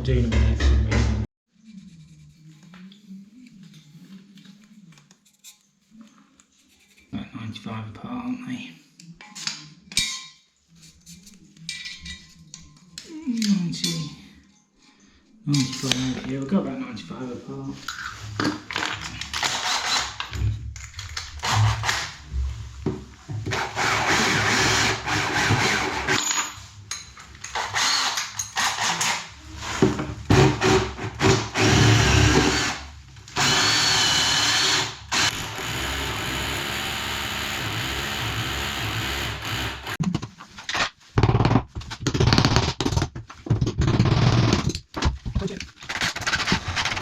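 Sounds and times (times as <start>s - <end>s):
power drill running: 19.4s - 20.2s, 21.4s - 22.1s, 23.5s - 26.2s, 27.6s - 29.2s, 30.3s - 40.0s.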